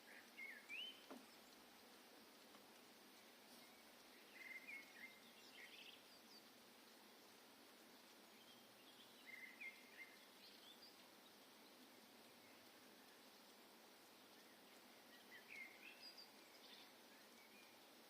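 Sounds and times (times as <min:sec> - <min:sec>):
birds chirping: 0:00.0 - 0:18.0
faint forest ambience hiss: 0:00.0 - 0:18.0.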